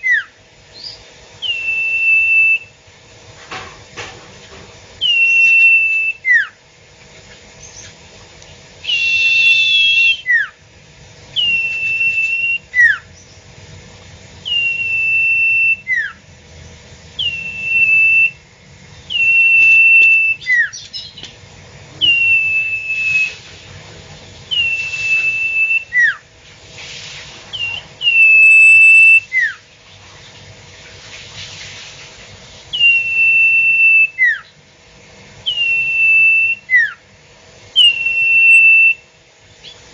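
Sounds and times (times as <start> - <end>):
bird calling high whistle: 0.0 - 2.8, 5.0 - 6.6, 8.8 - 10.6, 11.3 - 13.2, 14.4 - 16.2, 17.2 - 18.5, 19.1 - 21.2, 22.0 - 23.5, 24.5 - 26.3, 27.5 - 29.6, 32.7 - 34.6, 35.4 - 37.0, 37.7 - 39.8.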